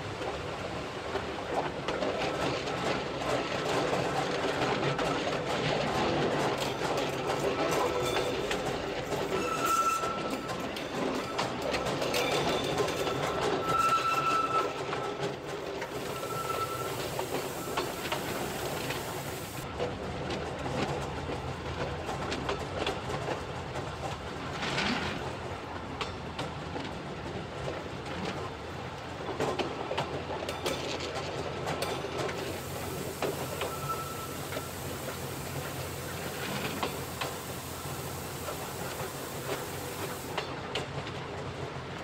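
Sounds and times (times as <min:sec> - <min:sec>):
train rumble: 0:00.0 - 0:42.0
wheels clattering on track: 0:00.0 - 0:42.0
short high tones: 0:33.6 - 0:34.8.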